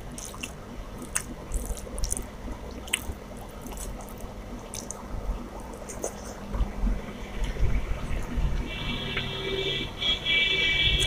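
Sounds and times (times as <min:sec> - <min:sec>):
wet chewing and lip-smacking: 0:00.0 - 0:06.4.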